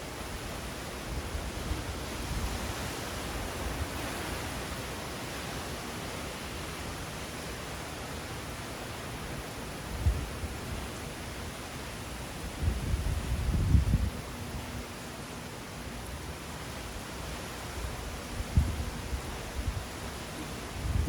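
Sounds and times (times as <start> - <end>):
hurricane wind and rain: 0.0 - 21.0
wind buffeting microphone: 12.4 - 14.7, 17.8 - 21.0.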